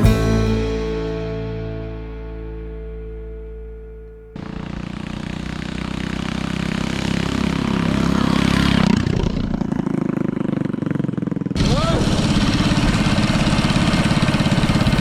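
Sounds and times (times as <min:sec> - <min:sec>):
small engine running: 0:04.4 - 0:15.0.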